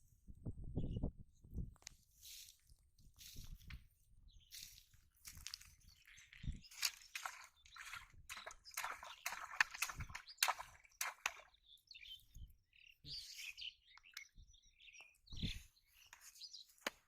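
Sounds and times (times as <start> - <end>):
birds chirping: 4.3 - 17.0.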